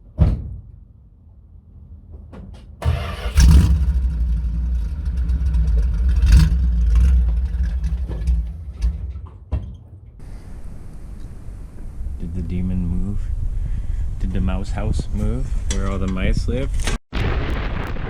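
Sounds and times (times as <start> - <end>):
car engine cranking and running: 2.8 - 13.1.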